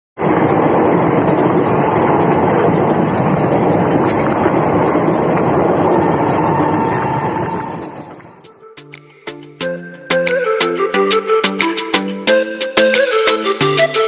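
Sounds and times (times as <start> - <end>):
wheels clacking over rail joints: 0.2 - 8.5
passenger train passing: 0.2 - 14.0.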